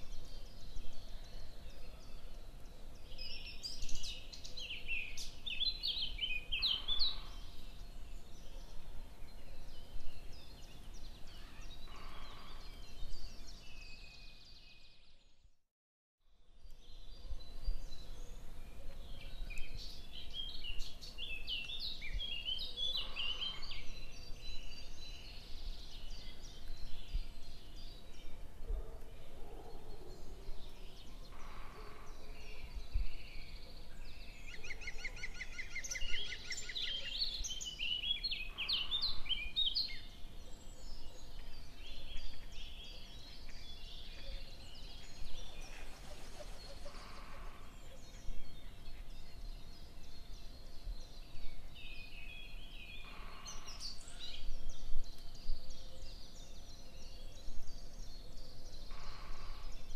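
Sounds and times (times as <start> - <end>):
small birds chirping: 16.6 - 59.9.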